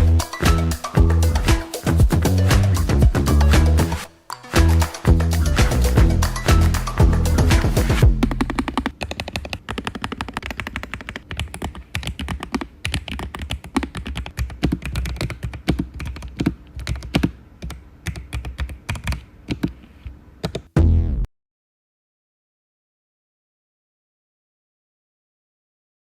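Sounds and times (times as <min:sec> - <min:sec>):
fast typing on mechanical keyboard: 0:08.4 - 0:19.7
loud low-pitched burst: 0:20.8 - 0:21.3.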